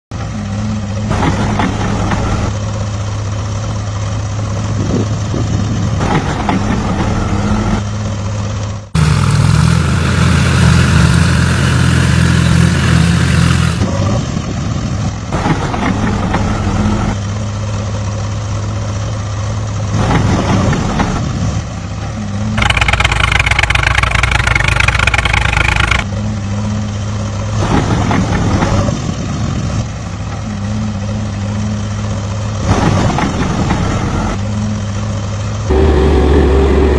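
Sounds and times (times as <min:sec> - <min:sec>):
small motors humming: 0:22.6 - 0:26.0
higher whir: 0:22.6 - 0:26.1, 0:35.7 - 0:36.9.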